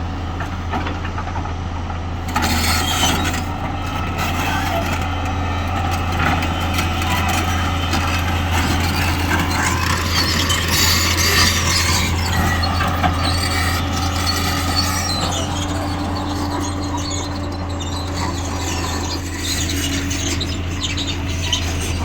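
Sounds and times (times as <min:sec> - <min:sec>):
diesel engine droning: 0:00.0 - 0:22.0
loud noisy rattle: 0:07.4 - 0:22.0.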